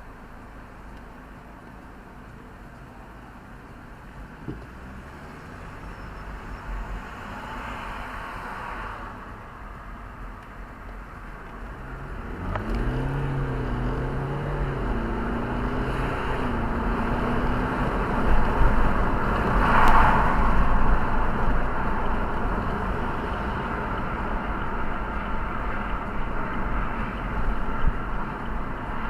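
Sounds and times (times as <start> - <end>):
car engine: 0.0 - 29.0
road noise: 0.0 - 29.0
rush of noise: 13.3 - 29.0.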